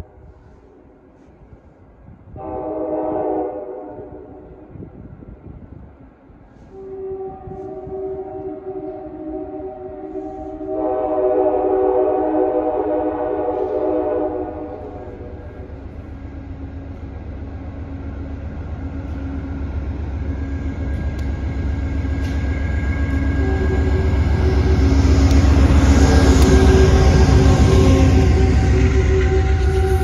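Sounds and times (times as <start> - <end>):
train horn chord: 2.4 - 4.6, 6.6 - 15.7, 23.0 - 30.0
train wheel noise: 4.0 - 30.0
locomotive engine rumble: 13.4 - 30.0.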